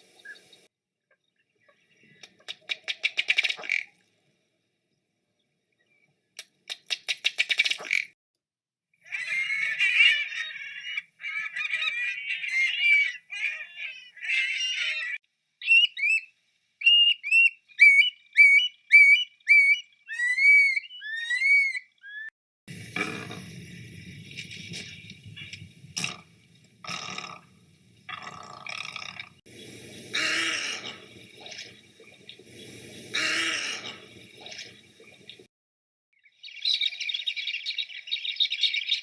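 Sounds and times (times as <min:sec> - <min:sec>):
bird calls: 0:09.0 - 0:22.3, 0:28.8 - 0:35.5, 0:36.2 - 0:39.0
harsh bird chattering: 0:30.1 - 0:31.8, 0:33.1 - 0:34.8.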